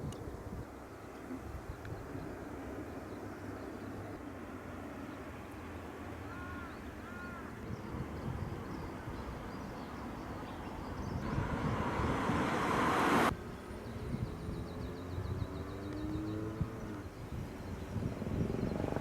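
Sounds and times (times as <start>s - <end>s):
crow cawing: 6.3s - 7.4s
low outdoor rumble: 11.2s - 13.3s
rushing noise: 11.2s - 13.3s.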